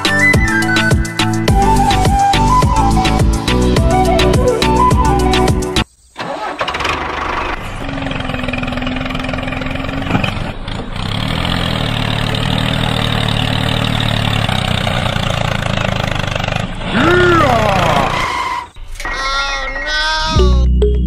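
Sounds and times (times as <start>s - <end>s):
tractor engine starting and running: 6.1s - 19.5s.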